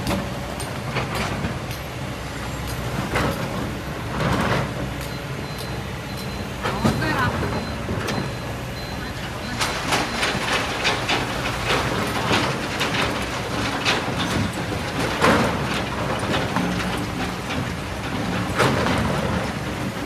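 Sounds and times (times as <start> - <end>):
excavator diesel engine running: 0.0 - 20.0
rocks and stones clattering: 9.4 - 19.8.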